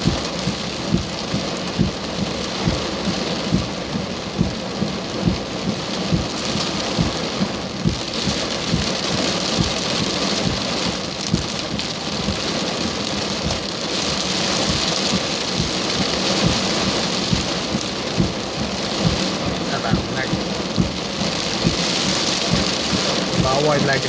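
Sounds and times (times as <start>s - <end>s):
heavy rain pouring: 0.0s - 24.0s
thuds of large raindrops: 0.0s - 24.0s.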